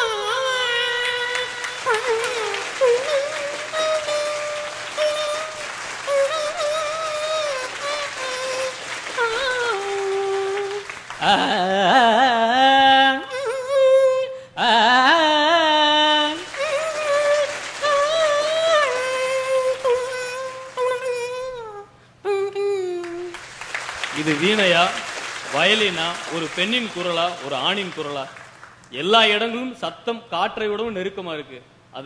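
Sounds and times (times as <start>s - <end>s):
voice imitating a veena: 0.0s - 23.4s.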